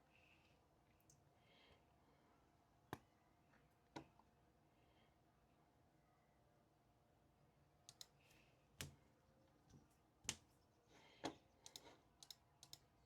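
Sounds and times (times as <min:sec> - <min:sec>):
sharp clicks and taps at desk: 0:11.2 - 0:12.8.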